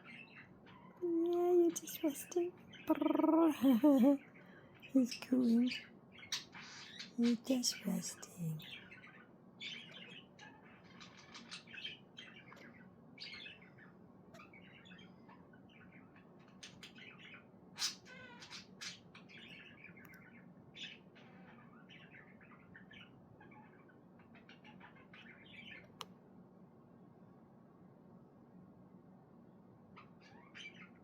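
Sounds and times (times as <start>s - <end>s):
budgerigar chirping and warbling: 1.8s - 4.2s, 5.6s - 8.0s, 8.6s - 25.9s, 30.0s - 31.0s.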